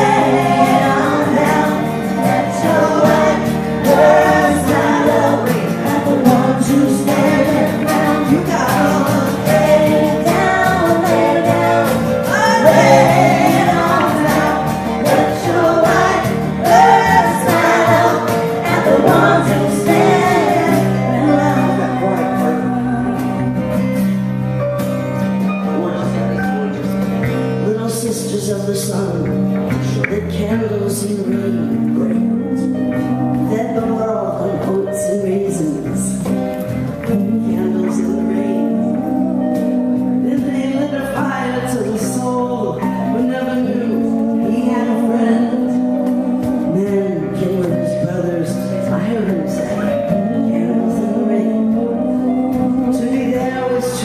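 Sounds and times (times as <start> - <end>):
singers in choral passage: 0.0 - 23.7, 37.0 - 47.5, 49.6 - 54.0
instrumental accompaniment: 0.0 - 54.0.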